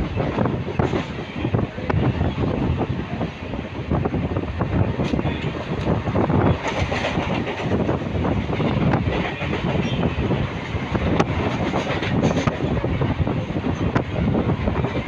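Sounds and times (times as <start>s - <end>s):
train carriage rumbling: 0.0s - 15.0s.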